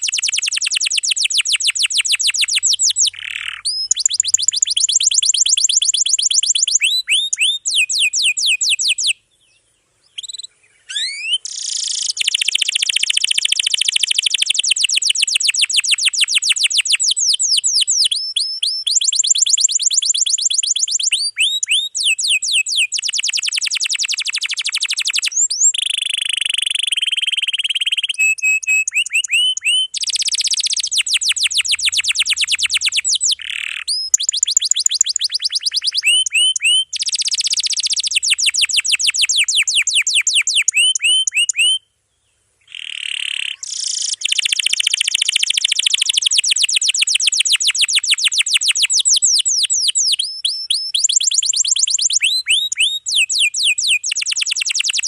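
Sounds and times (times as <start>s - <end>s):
canary singing rapid rolls: 0.0s - 9.2s, 10.2s - 41.8s, 42.6s - 55.0s.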